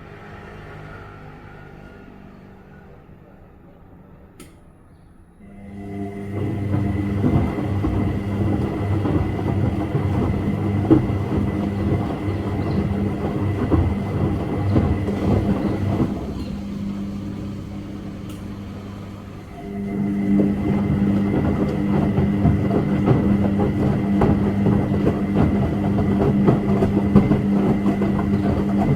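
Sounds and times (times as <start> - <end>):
washing machine drum turning: 5.4 - 28.9.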